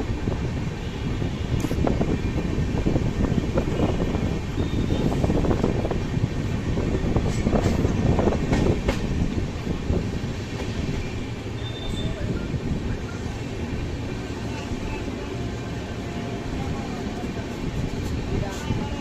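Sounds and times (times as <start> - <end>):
train wheels clattering on rails: 7.1 - 11.0.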